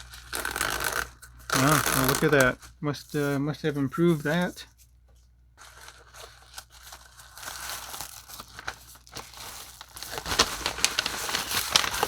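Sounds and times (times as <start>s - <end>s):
packaging crinkling and tearing: 0.0s - 3.2s, 5.6s - 12.0s.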